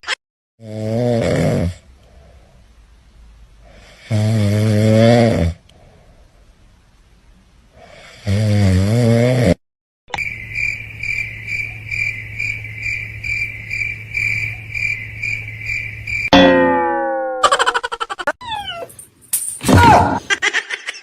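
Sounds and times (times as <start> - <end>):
high pulsing chirping: 10.2 - 18.7.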